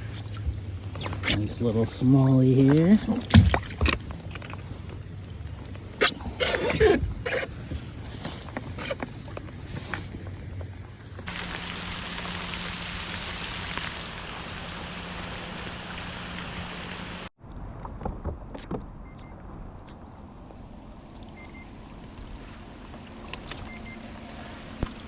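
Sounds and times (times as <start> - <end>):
steady rain hiss: 11.3 - 17.3.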